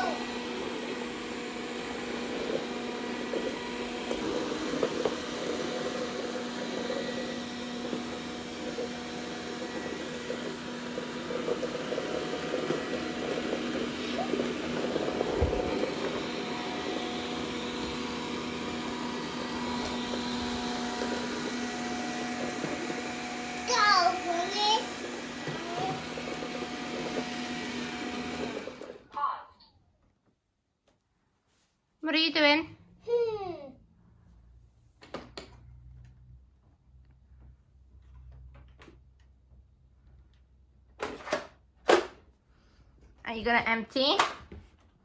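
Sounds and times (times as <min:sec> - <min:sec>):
robot vacuum motor hum: 0:00.0 - 0:29.0.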